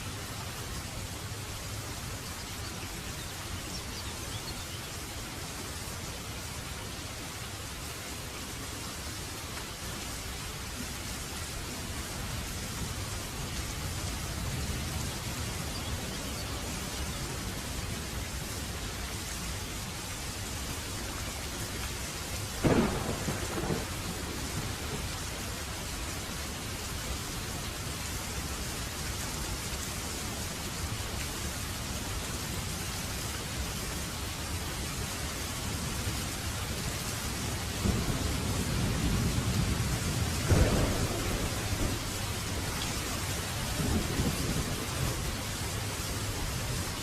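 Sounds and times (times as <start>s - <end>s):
steady rain falling: 0.0s - 47.0s
thunder clap: 22.6s - 25.0s, 37.8s - 42.7s
thunder rumbling: 22.6s - 25.4s, 37.7s - 46.6s.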